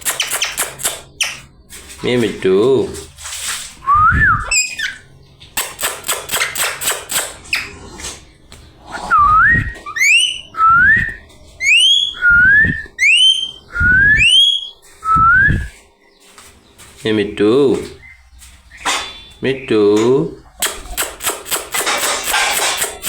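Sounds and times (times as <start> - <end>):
parrot clicking: 0.0 - 1.4, 5.6 - 7.4, 20.6 - 23.0
parrot whistling: 9.1 - 15.7.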